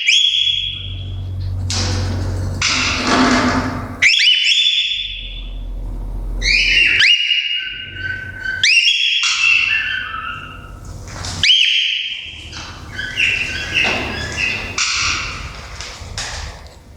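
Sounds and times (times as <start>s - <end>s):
cockatiel whistling: 6.4s - 10.8s, 12.9s - 15.5s.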